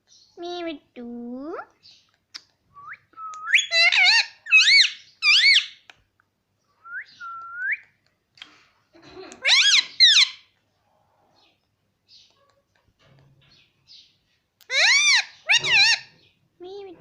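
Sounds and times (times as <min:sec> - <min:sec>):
parrot whistled calls: 0:02.8 - 0:05.8.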